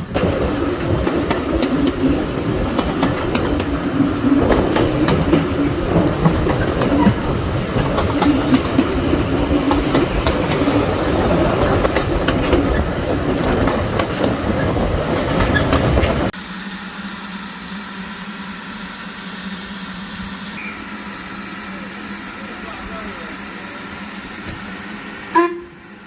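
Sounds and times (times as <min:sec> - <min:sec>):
high wheel squeal: 0:00.0 - 0:09.4, 0:10.6 - 0:18.5, 0:19.1 - 0:26.0
wheels clicking over rail joints: 0:00.0 - 0:16.4
train rolling on rails: 0:00.0 - 0:26.0.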